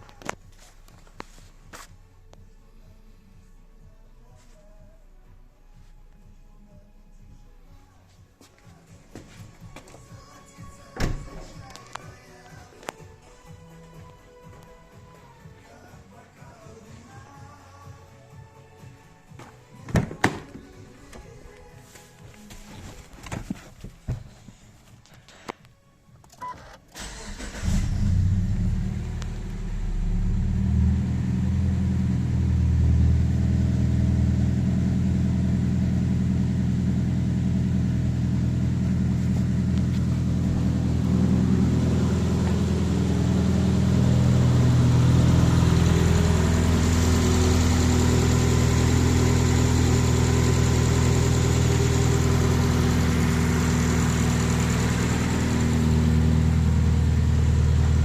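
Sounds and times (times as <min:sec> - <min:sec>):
car engine starting and idling: 0:26.3 - 0:58.0.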